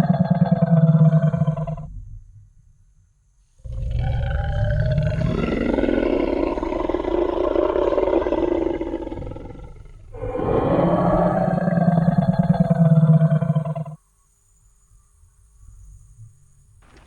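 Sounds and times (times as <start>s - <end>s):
dinosaur roar: 0.0s - 1.9s, 3.6s - 14.0s.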